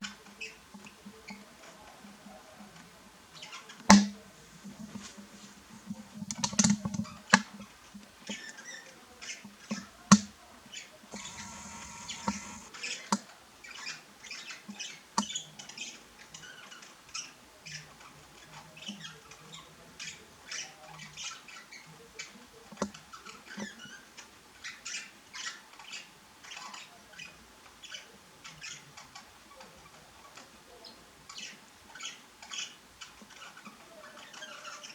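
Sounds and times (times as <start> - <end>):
budgerigars chirping: 10.8 - 12.7
sharp clicks: 11.1 - 12.7.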